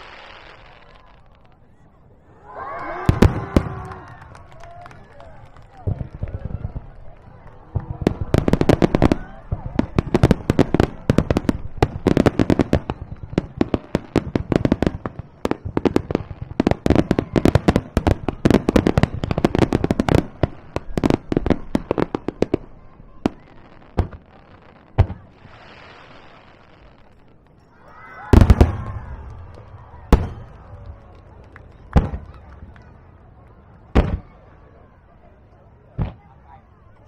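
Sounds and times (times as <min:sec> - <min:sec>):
fireworks crackling hiss: 0:00.0 - 0:01.6, 0:23.4 - 0:30.4
fireworks bursting: 0:00.0 - 0:01.7, 0:02.9 - 0:33.0.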